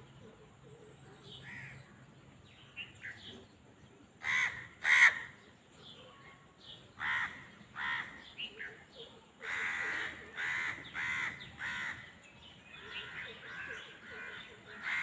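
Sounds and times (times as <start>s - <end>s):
small birds chirping: 0.0s - 15.0s
loud harsh bird calls: 4.2s - 6.0s, 6.6s - 15.0s.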